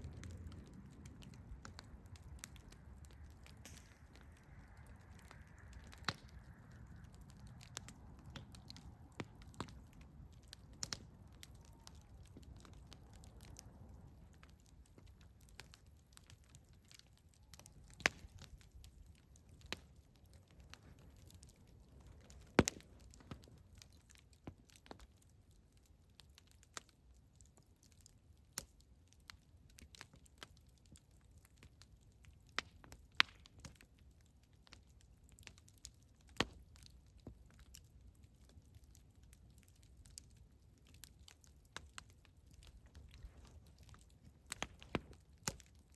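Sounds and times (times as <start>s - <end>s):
faint low rumble: 0.0s - 24.5s
campfire crackling and popping: 0.0s - 45.9s.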